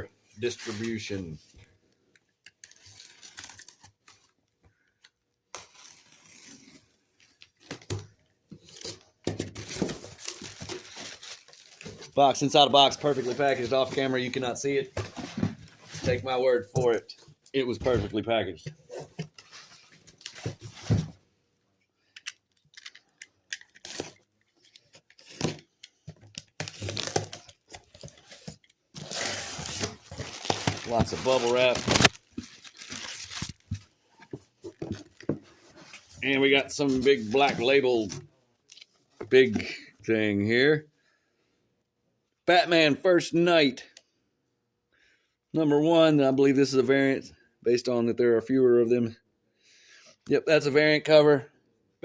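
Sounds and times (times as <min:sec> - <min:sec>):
cardboard rustling: 0:08.6 - 0:21.2, 0:26.6 - 0:38.3
packing tape tearing: 0:22.2 - 0:25.7, 0:26.3 - 0:28.4, 0:29.0 - 0:33.8
cardboard box rustling: 0:26.6 - 0:37.6.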